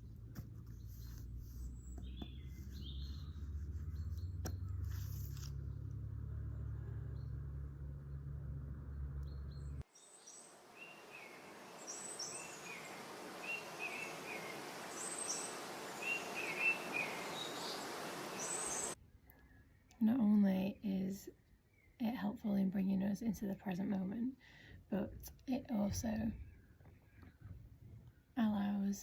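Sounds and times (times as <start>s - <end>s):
small birds chirping: 0.4s - 5.0s, 6.5s - 20.7s
low rumble with clicks: 5.4s - 9.8s
steady hiss: 10.3s - 19.0s.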